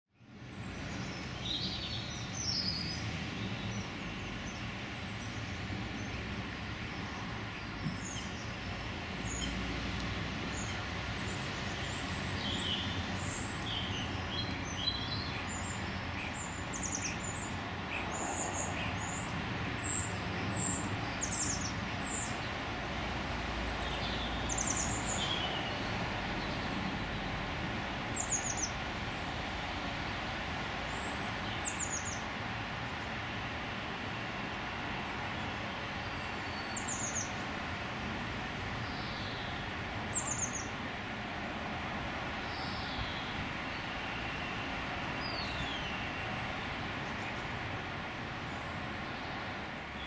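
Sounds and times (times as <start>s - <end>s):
birds chirping: 0.2s - 9.8s, 10.5s - 22.6s, 23.6s - 27.3s, 28.1s - 32.3s, 35.2s - 37.5s, 38.8s - 40.8s, 42.4s - 47.7s.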